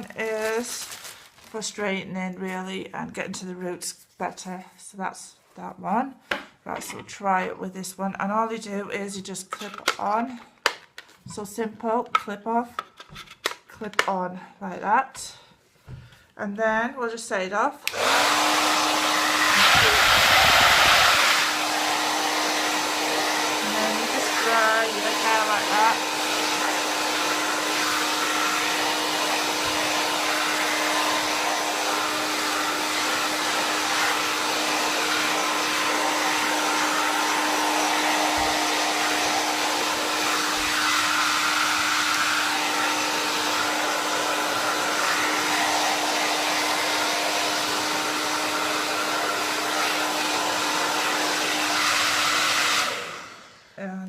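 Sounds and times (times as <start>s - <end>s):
hair dryer blowing: 17.8s - 53.8s.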